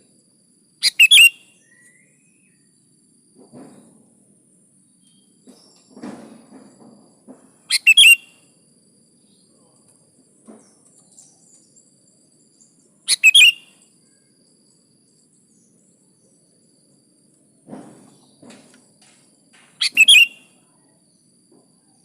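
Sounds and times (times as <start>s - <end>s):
bulbul chirping: 0.8s - 1.4s, 7.7s - 8.3s, 13.1s - 13.7s, 19.8s - 20.5s.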